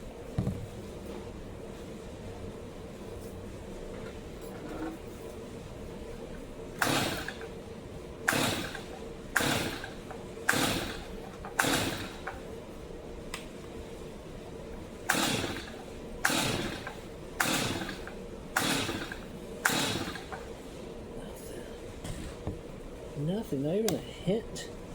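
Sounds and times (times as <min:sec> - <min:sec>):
chainsaw recoil starter pulls: 0:06.8 - 0:07.4, 0:08.3 - 0:12.4, 0:15.1 - 0:20.4.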